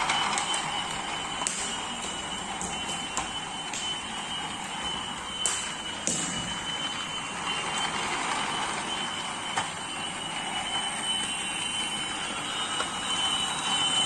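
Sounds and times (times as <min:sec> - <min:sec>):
thin steady whine: 0:00.0 - 0:14.0
toy train motors whirring: 0:07.7 - 0:14.0.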